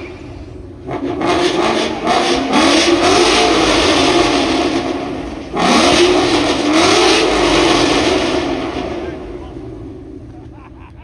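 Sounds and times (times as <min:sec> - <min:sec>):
car engine revving hard: 0:00.0 - 0:10.9.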